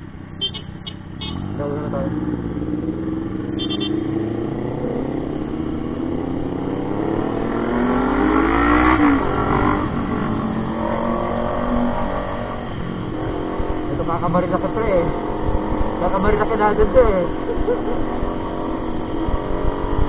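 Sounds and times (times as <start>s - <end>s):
motorcycle engine accelerating: 1.1s - 20.0s.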